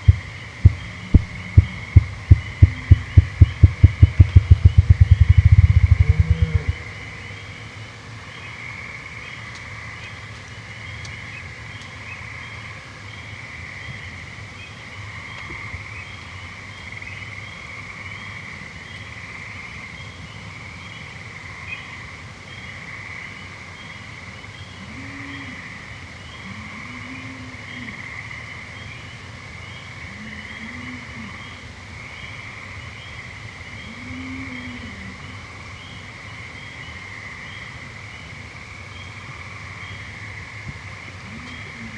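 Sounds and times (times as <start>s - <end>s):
low rising and falling hums: 0.0s - 7.4s
frogs and toads trilling: 0.0s - 41.9s.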